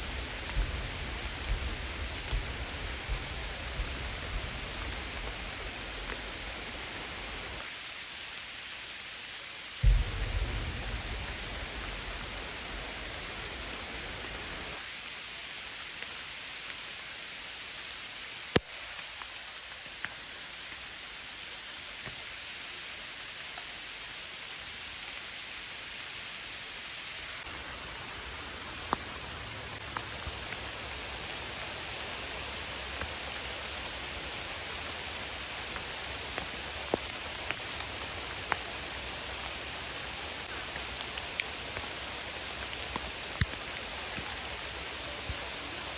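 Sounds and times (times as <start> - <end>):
sharp drips and ticks: 0.0 - 17.1, 17.8 - 21.0, 27.2 - 45.9
steady rain: 0.0 - 45.9
loud knock: 9.8 - 12.4.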